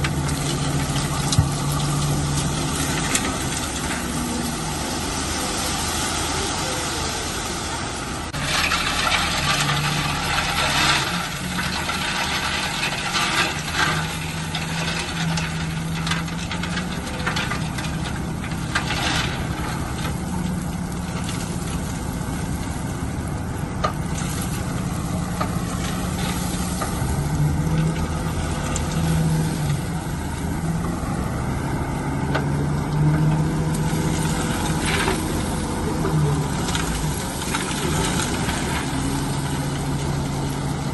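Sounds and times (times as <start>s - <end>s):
heavy machine diesel engine: 0.0s - 40.9s
rock clattering and scraping: 8.4s - 22.7s, 32.4s - 40.9s.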